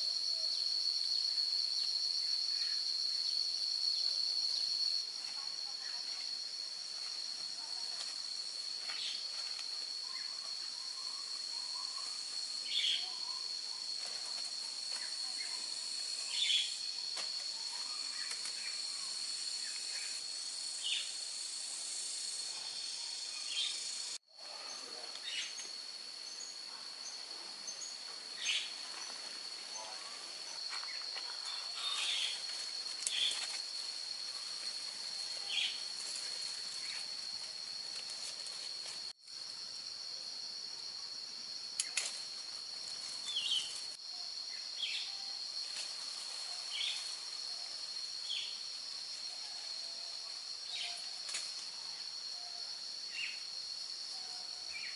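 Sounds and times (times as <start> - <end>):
high insect drone: 0.0 - 54.9.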